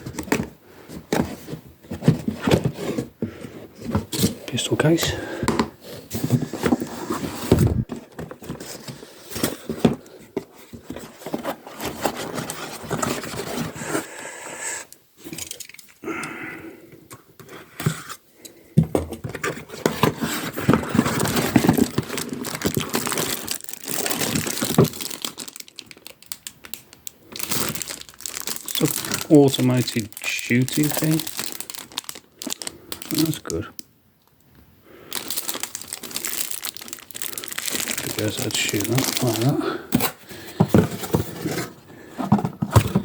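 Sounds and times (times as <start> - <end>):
packaging wrap crinkling and tearing: 20.1 - 33.8, 35.1 - 40.2.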